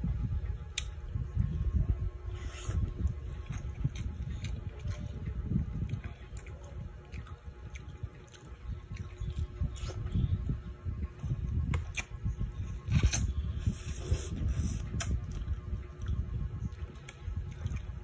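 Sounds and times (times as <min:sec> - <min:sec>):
chewing and wet mouth sounds: 0:00.6 - 0:18.0.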